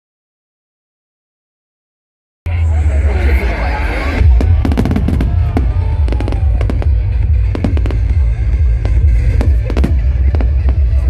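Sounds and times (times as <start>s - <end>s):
music playing: 2.5s - 11.0s
fireworks bangs and cracks: 4.1s - 11.0s.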